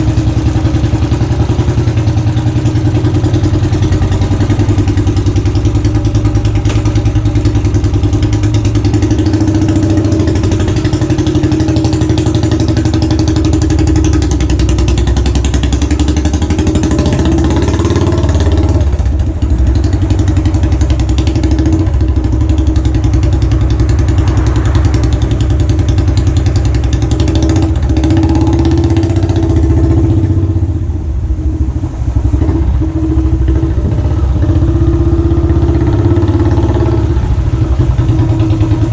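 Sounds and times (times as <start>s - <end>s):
motorcycle engine thudding: 0.0s - 28.2s.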